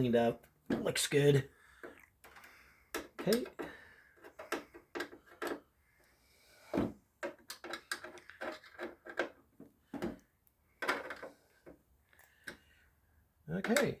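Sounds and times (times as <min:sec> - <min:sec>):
tools clicking and knocking: 0:01.8 - 0:05.7, 0:07.2 - 0:10.2, 0:10.8 - 0:12.7, 0:13.6 - 0:14.0.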